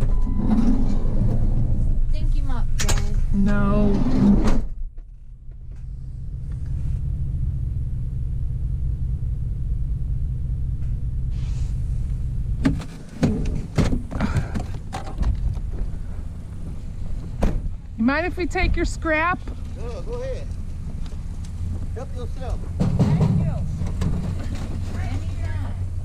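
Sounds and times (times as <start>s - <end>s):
vehicle engine rumble from cab: 0.0s - 26.0s
sharp knocks and clatters: 12.6s - 17.8s, 19.4s - 25.7s.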